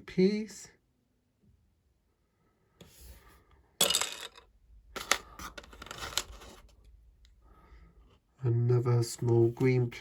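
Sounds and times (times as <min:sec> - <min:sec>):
lego pieces rustling: 0:05.0 - 0:06.7.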